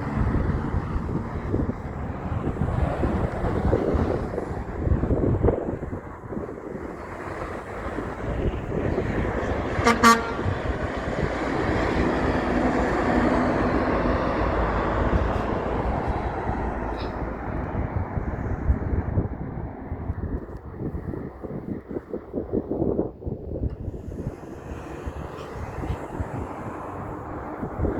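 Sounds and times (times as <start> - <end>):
truck passing by: 0.0 - 22.0, 23.5 - 27.9
truck horn blast: 9.5 - 13.4.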